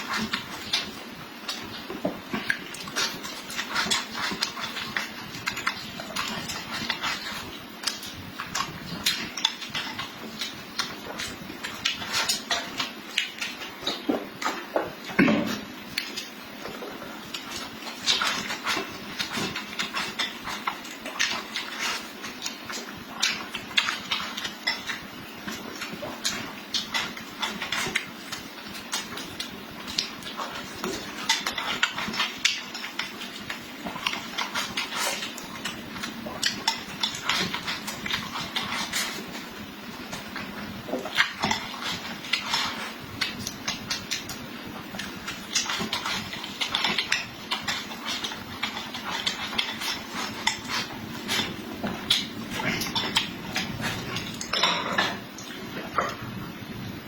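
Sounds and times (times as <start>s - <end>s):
person chewing: 0.0s - 56.3s.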